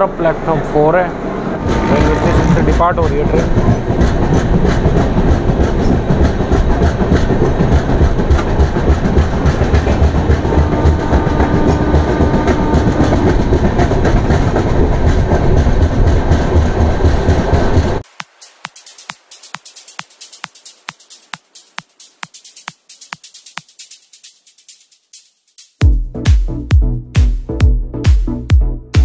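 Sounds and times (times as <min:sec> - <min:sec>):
train wheels rumbling on rails: 0:00.1 - 0:18.0.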